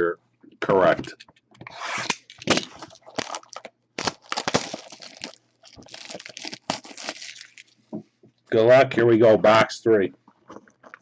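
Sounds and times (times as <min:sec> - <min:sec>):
packaging crackling and crinkling: 0:02.0 - 0:07.8.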